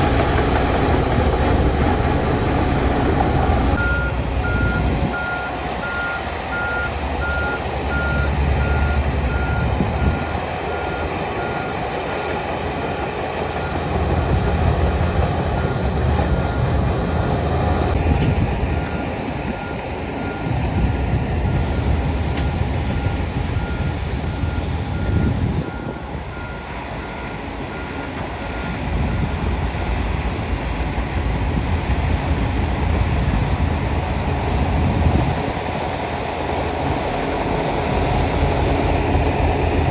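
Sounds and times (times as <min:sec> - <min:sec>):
low rumble of diesel engines: 0:00.0 - 0:39.9
reversing alarm beeping: 0:03.7 - 0:12.3, 0:21.5 - 0:29.4.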